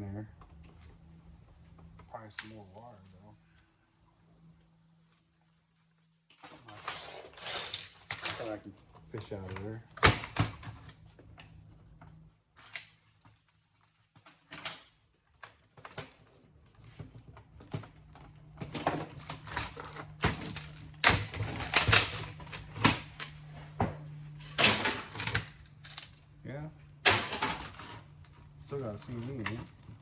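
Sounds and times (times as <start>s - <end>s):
parts clicking and rattling: 14.2s - 23.5s, 24.4s - 26.2s.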